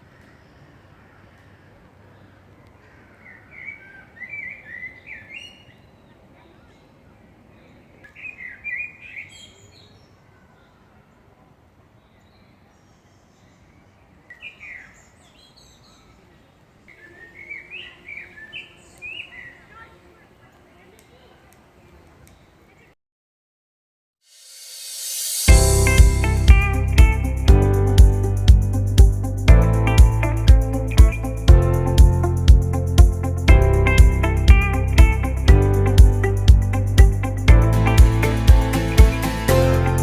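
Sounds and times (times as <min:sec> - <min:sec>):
songbird singing: 0:00.0 - 0:11.3, 0:11.9 - 0:23.0
background hiss: 0:24.3 - 0:40.0.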